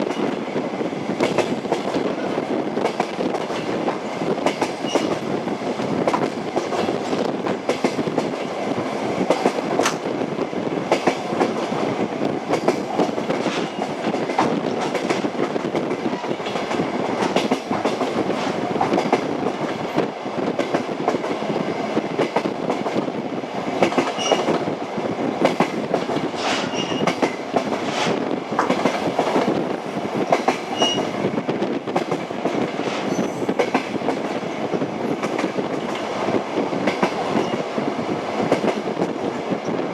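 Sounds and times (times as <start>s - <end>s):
train wheels clicking over rail joints: 1.1s - 10.1s, 10.8s - 39.7s.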